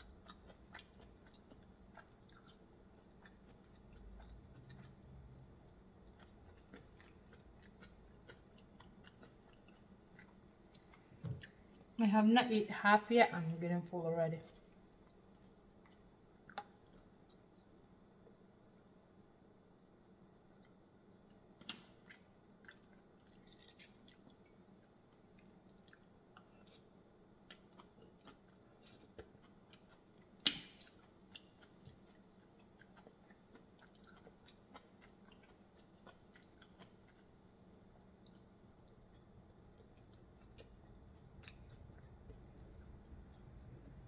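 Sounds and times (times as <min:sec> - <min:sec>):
chewing seafood: 0:00.0 - 0:12.0, 0:20.1 - 0:44.0
small clicks and smacks: 0:20.4 - 0:24.4.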